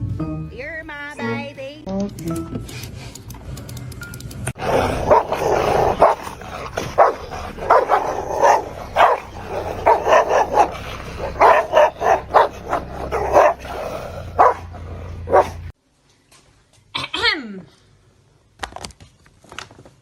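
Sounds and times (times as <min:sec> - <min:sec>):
dog barking: 0:04.7 - 0:15.7.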